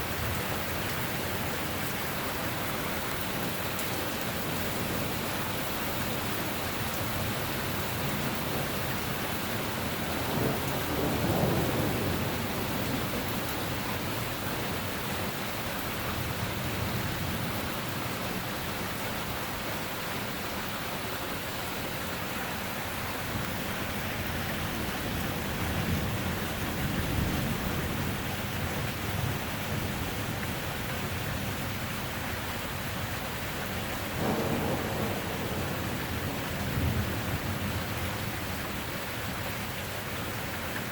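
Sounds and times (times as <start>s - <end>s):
steady rain: 0.0s - 40.9s
thunder rumbling: 9.6s - 18.1s, 34.1s - 39.1s.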